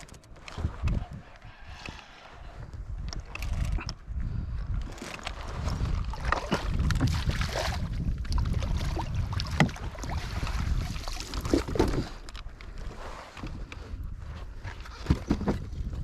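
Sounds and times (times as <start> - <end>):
wind on microphone: 0.0 - 16.0
water splashing and sloshing: 4.8 - 13.6.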